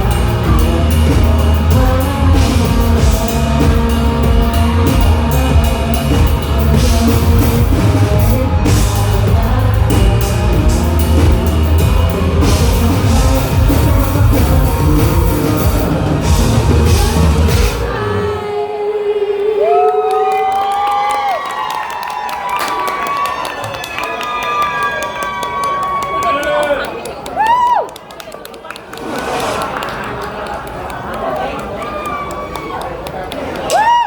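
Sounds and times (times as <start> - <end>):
live rock band playing: 0.0 - 18.4
person singing: 0.0 - 20.7.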